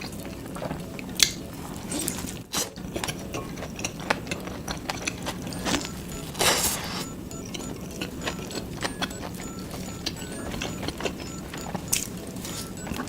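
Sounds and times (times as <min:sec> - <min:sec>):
crisp bites and chewing: 0:02.0 - 0:08.1.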